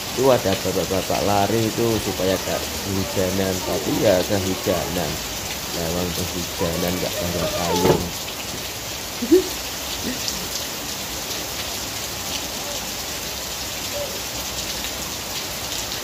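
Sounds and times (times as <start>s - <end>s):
rain on puddles: 0.0s - 16.0s.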